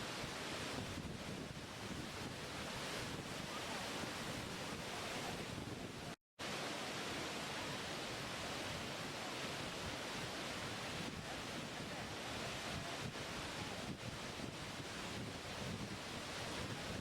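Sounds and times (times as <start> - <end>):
waterfall rushing: 1.6 - 17.0.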